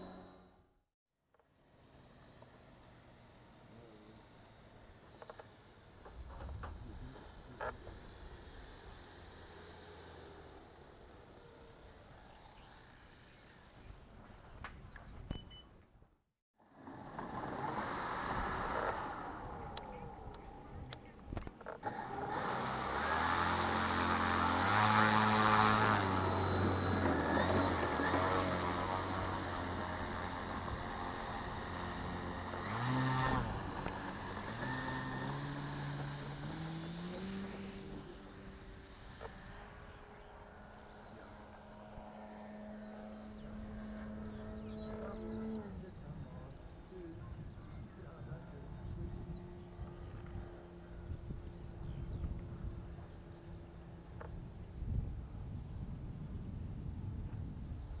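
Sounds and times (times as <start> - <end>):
model plane propeller hum: 0.0 - 15.3, 16.6 - 58.0.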